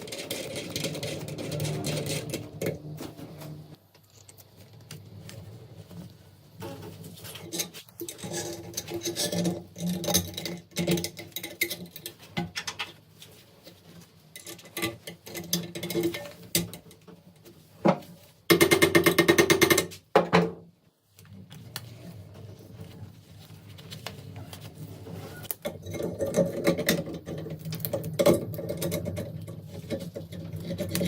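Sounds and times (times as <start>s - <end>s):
fast metal rattling: 0.0s - 3.8s.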